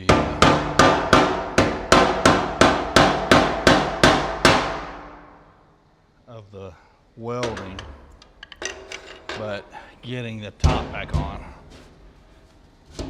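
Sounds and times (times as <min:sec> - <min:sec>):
hammer striking metal tank: 0:00.0 - 0:05.4, 0:07.4 - 0:09.9, 0:10.6 - 0:11.9.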